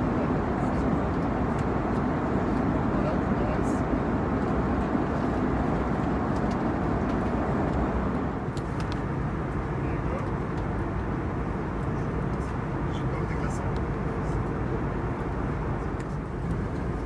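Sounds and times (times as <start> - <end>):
airplane cabin engine and airflow noise: 0.0 - 17.0.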